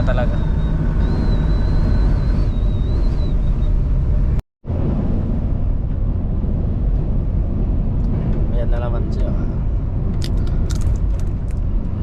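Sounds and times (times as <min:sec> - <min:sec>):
thin wavering whistle: 0:00.0 - 0:03.8
truck rumbling: 0:00.0 - 0:12.0
wind noise: 0:00.0 - 0:12.0.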